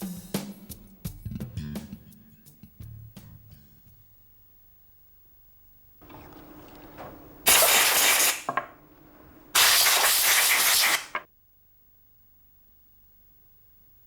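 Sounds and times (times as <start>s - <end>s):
pressurised spray hissing: 7.4s - 8.7s, 9.6s - 11.2s.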